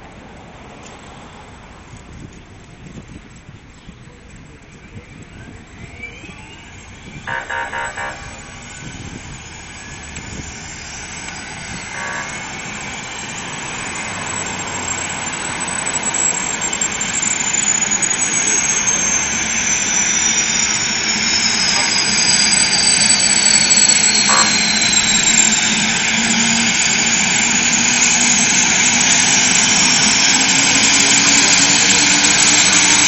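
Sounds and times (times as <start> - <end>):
helicopter turbine engines spooling up: 4.6 - 33.0
short pulsed horn-like tone: 6.5 - 10.1, 11.2 - 17.7, 18.6 - 33.0.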